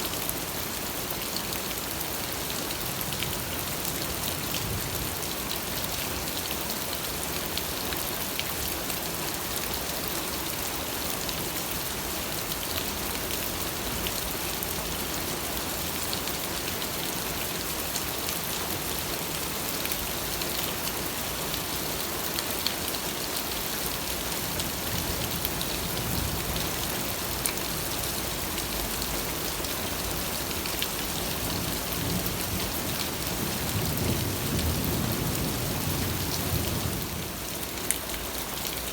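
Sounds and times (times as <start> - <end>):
steady rain hiss: 0.0 - 38.9
low rumble of thunder: 31.6 - 37.4.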